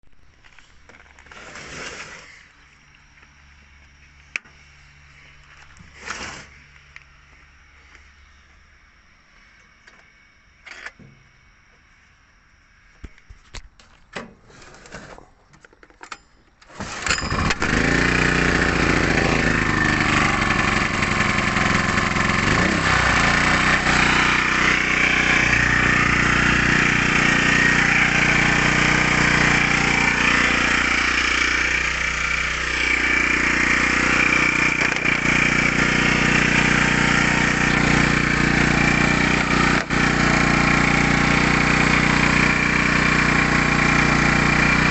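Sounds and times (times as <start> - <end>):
generator engine running loudly: 16.9 - 44.9
generator rattles and clicks: 34.4 - 35.8.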